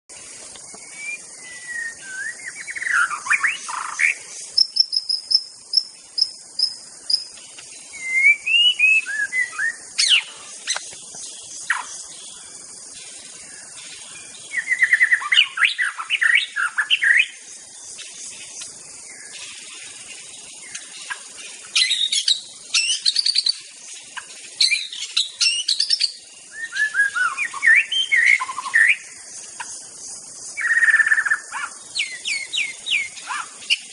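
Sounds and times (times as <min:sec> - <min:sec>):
high insect hiss: 0:00.1 - 0:33.9
bird singing whistled phrases: 0:00.8 - 0:04.2, 0:07.8 - 0:10.4, 0:14.6 - 0:17.4, 0:24.6 - 0:29.0.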